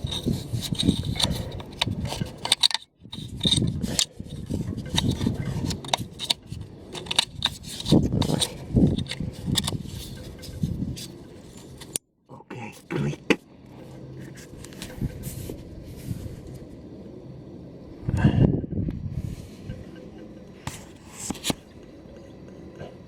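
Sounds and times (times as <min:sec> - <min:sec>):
plastic and metal parts clicking: 0:00.0 - 0:11.1
hands rubbing and scraping parts: 0:00.0 - 0:12.0, 0:12.8 - 0:16.7, 0:19.6 - 0:21.8.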